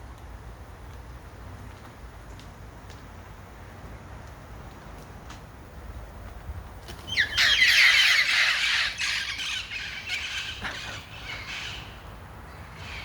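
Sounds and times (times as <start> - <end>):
parrots squawking: 7.1 - 12.0.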